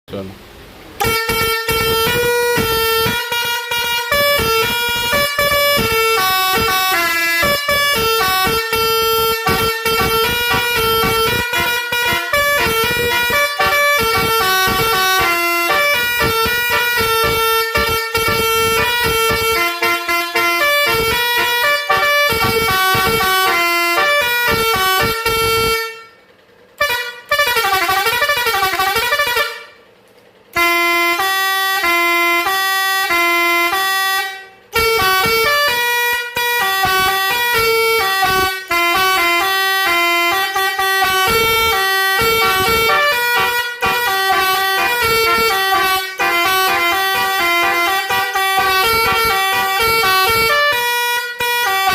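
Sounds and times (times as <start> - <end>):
musical vehicle horn playing tunes: 1.0 - 51.9.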